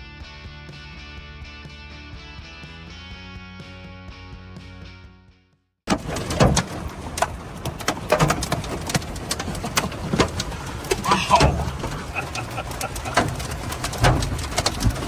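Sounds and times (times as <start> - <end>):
hail pounding a vehicle: 5.9 - 15.0.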